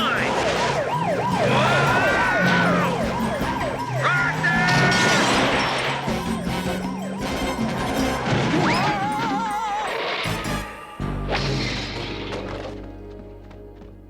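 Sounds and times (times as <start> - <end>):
cartoon police siren yelping: 0.0 - 11.2.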